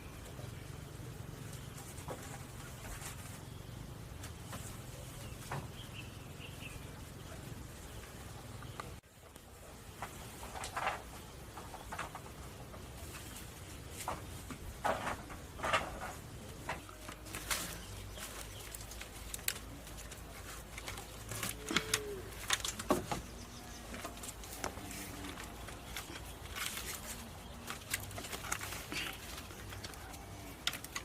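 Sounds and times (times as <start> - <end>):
clicks knocks and rustles: 9.9 - 31.0.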